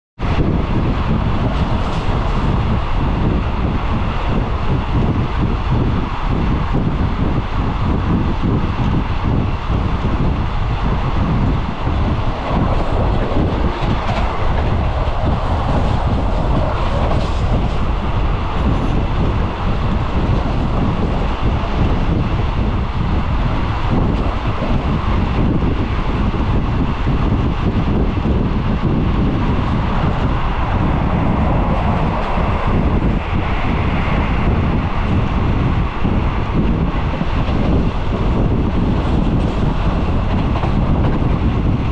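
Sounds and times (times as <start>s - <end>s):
rushing air: 0.2s - 41.9s
train wheels rumbling on rails: 0.2s - 41.9s.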